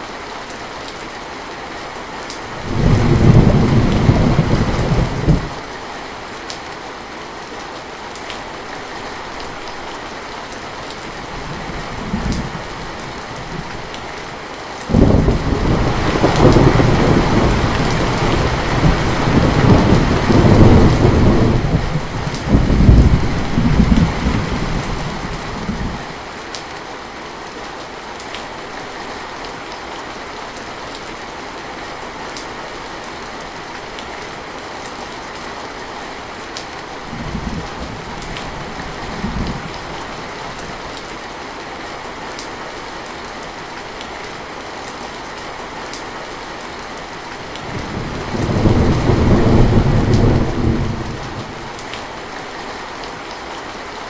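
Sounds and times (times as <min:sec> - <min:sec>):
heavy rain: 0:00.0 - 0:54.0
rolling thunder: 0:02.6 - 0:05.6, 0:14.9 - 0:26.1, 0:47.6 - 0:51.8.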